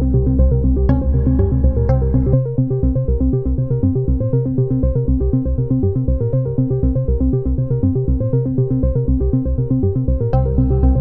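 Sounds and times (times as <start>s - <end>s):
heavy bass: 0.0s - 2.4s.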